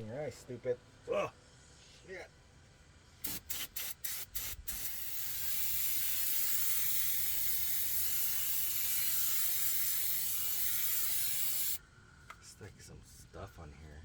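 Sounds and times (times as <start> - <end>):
aerosol can spraying hiss: 3.2 - 11.8.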